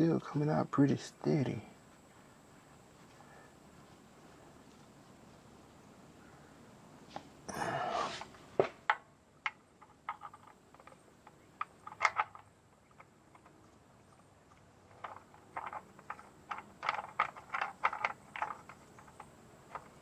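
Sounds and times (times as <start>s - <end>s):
rustling scrape: 7.1s - 8.5s
sharp clicks and knocks: 8.2s - 20.0s.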